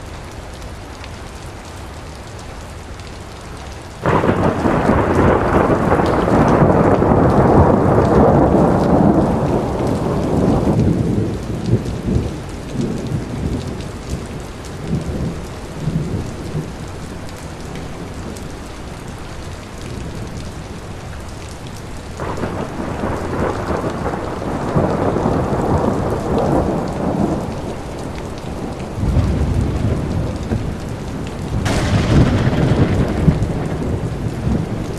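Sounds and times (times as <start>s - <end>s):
rain falling: 0.0s - 34.9s
thunder rumbling: 4.0s - 17.1s, 22.2s - 34.9s.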